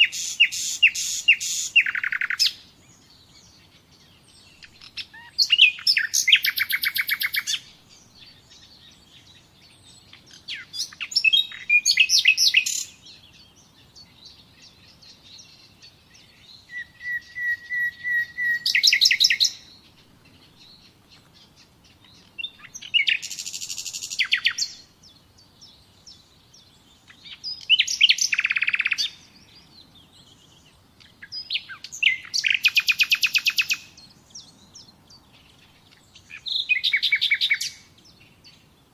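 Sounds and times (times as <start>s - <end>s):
songbird singing high trills: 0.0s - 38.9s.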